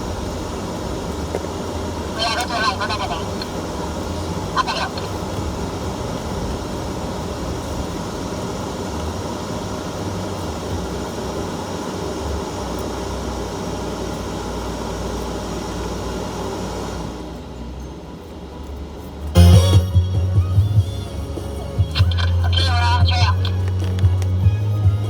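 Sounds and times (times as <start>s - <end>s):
off-road vehicle engine rumble: 0.0s - 25.0s.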